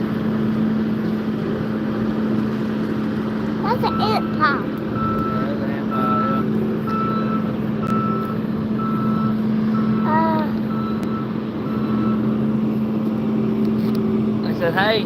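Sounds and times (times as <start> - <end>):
engine hum: 0.0 - 15.0
reversing alarm beeping: 3.8 - 12.5.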